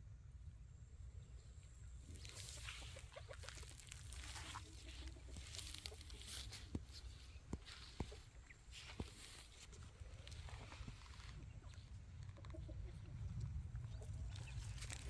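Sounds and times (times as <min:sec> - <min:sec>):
rustling: 0:02.1 - 0:12.6
chickens clucking: 0:02.2 - 0:14.7.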